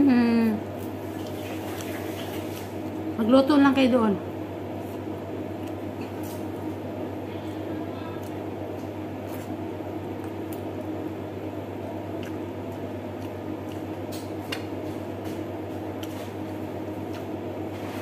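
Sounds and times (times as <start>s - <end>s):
low steady hum: 0.0s - 18.0s
wet chewing and lip-smacking: 4.8s - 6.7s, 10.2s - 10.7s, 12.0s - 17.4s.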